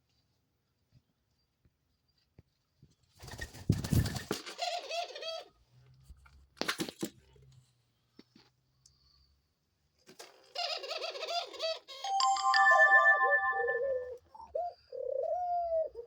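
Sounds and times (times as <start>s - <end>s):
dove cooing: 10.5s - 11.9s, 13.8s - 16.0s.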